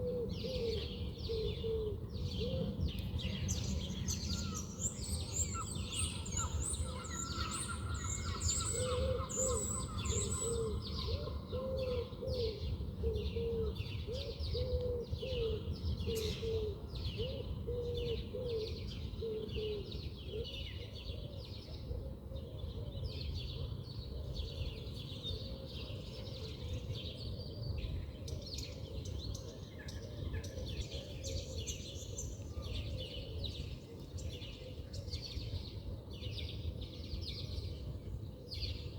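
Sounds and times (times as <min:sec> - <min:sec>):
birds chirping and singing: 0:00.0 - 0:21.6.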